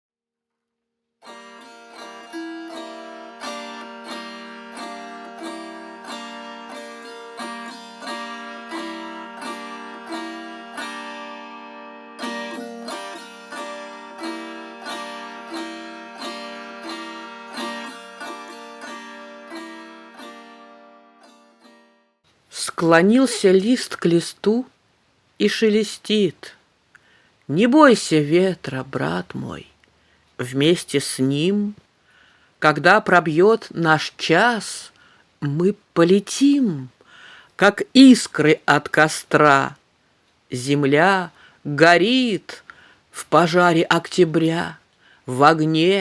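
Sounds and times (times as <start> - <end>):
plucked zither melody: 1.2 - 22.1.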